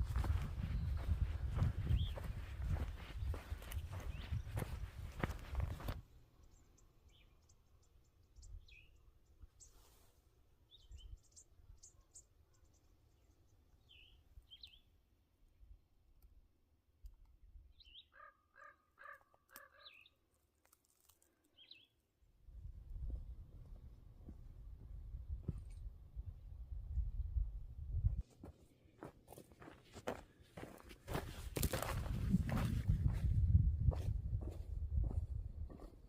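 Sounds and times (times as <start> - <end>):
birds chirping: 0.0 - 9.9, 10.7 - 15.0, 17.7 - 20.2, 21.5 - 22.0.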